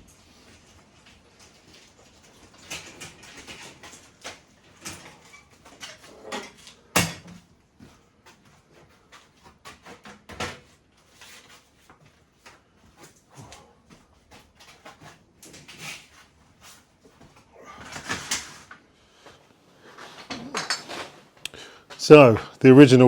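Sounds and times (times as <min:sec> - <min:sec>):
objects knocking and clattering: 0:00.0 - 0:10.8, 0:17.1 - 0:18.8, 0:19.9 - 0:22.0.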